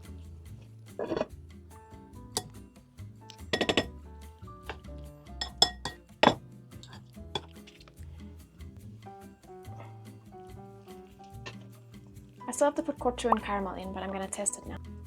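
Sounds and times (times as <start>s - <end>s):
background music: 0.0s - 15.0s
utensils clinking on dishes: 1.0s - 1.3s, 3.3s - 4.0s, 4.7s - 8.0s.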